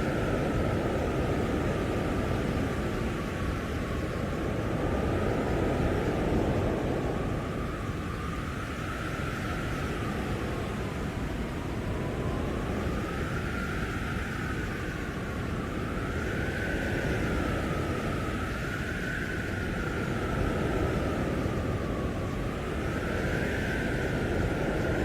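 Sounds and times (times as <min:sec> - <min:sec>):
blizzard wind roaring: 0:00.0 - 0:25.0
thin howling wind whistle: 0:00.0 - 0:25.0.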